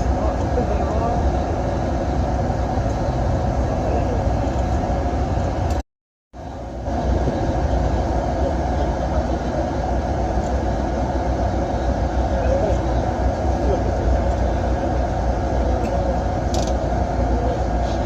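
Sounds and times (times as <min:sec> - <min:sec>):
bus engine and road rumble: 0:00.0 - 0:05.8, 0:06.4 - 0:18.0.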